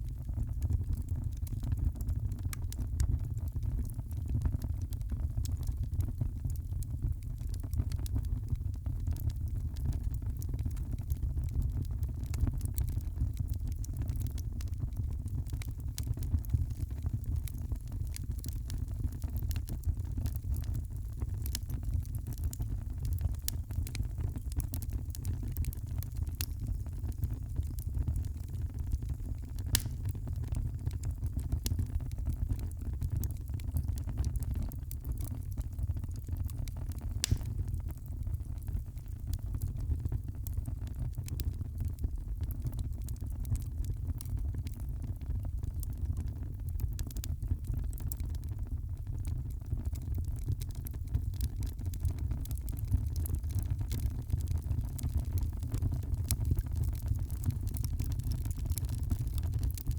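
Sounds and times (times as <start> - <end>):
wood fire crackling: 0.0 - 59.9
fire snapping: 15.6 - 34.4, 36.9 - 38.2, 56.3 - 59.9.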